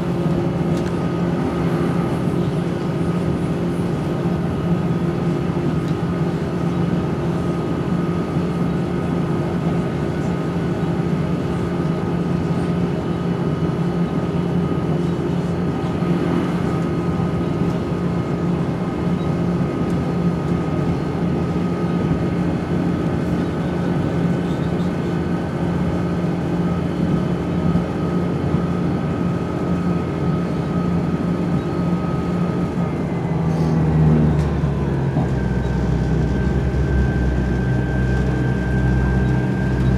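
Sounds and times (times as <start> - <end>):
train diesel engine drone: 0.0 - 39.9
high whine: 34.4 - 39.9.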